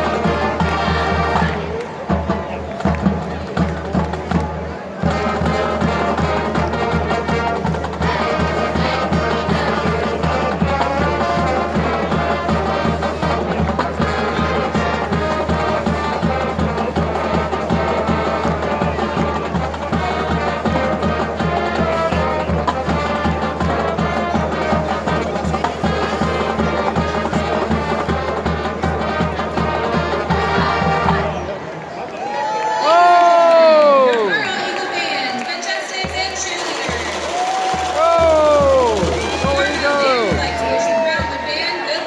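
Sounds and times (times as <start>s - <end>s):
brass band with drums: 0.0s - 32.2s, 32.9s - 42.0s.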